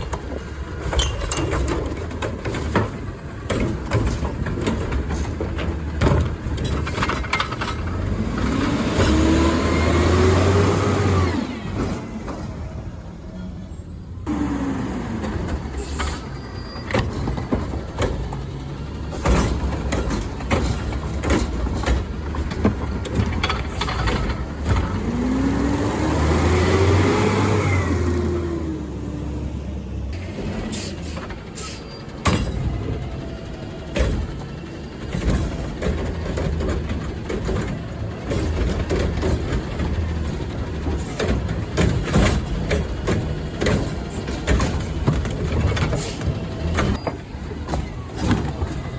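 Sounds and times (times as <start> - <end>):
clanks and knocks: 0.0 - 9.4, 15.2 - 25.3, 32.1 - 48.9
diesel engine hum: 0.0 - 48.9.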